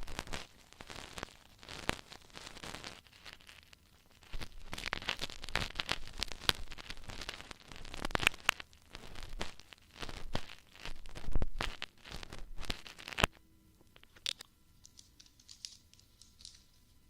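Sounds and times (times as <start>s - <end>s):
ear-cleaning tools scratching: 0.0s - 13.3s.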